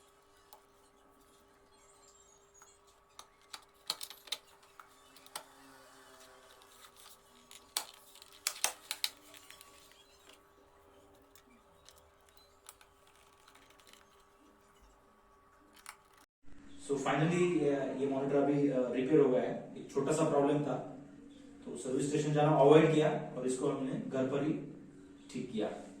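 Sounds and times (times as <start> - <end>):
plastic parts clicking: 0.2 - 15.0, 15.7 - 16.2.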